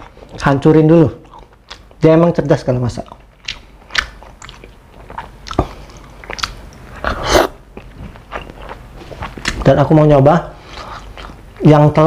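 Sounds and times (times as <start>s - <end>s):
person chewing: 1.2s - 2.0s, 3.0s - 9.8s, 10.6s - 11.6s.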